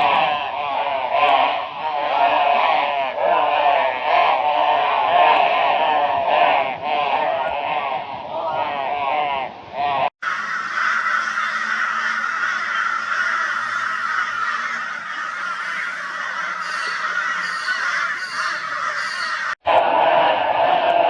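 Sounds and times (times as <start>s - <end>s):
crows calling raucously: 10.2s - 19.6s.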